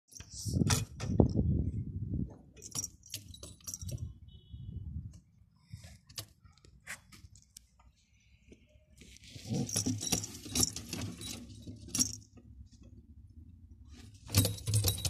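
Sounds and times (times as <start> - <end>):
pigeons scuffling: 9.0 - 12.2.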